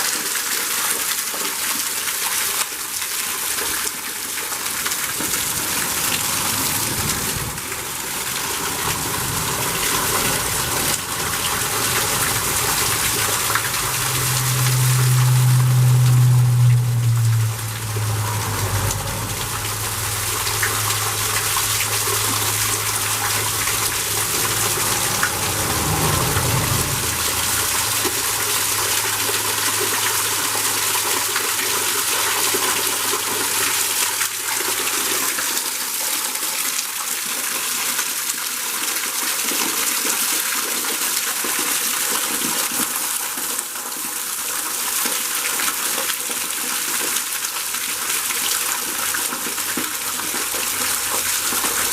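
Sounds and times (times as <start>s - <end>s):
waterfall rushing: 2.8s - 35.6s
low steady hum: 5.1s - 32.3s.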